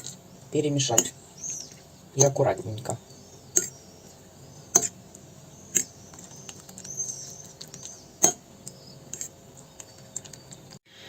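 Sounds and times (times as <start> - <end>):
utensil scraping and tapping plate: 3.5 - 10.8.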